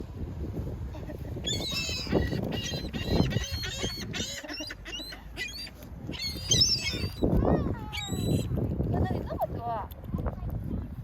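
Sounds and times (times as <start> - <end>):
flock of birds calling: 1.5 - 7.3.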